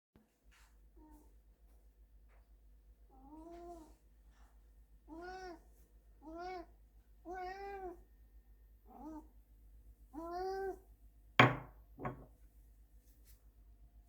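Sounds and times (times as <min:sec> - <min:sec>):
cat meowing: 0:05.1 - 0:05.6, 0:06.2 - 0:08.0, 0:10.2 - 0:10.8.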